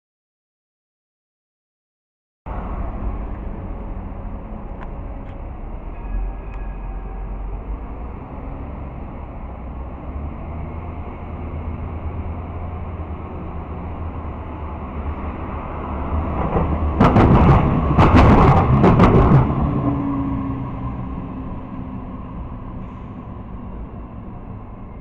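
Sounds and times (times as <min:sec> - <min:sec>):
tram rumbling past: 0:02.5 - 0:25.0
loud knocks and clunks: 0:16.4 - 0:19.7.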